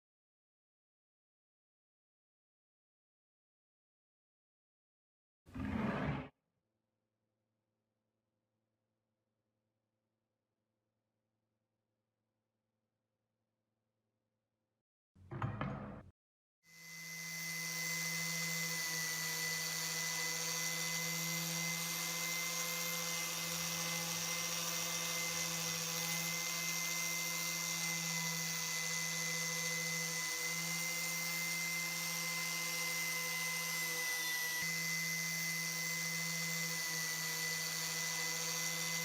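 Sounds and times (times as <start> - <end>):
electric power tool whining: 16.8 - 39.0.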